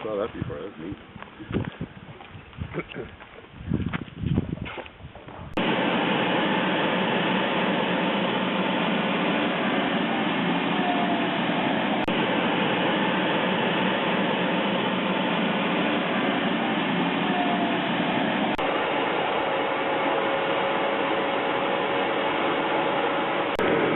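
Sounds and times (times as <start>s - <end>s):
jet turbine engine rushing: 5.6s - 23.9s.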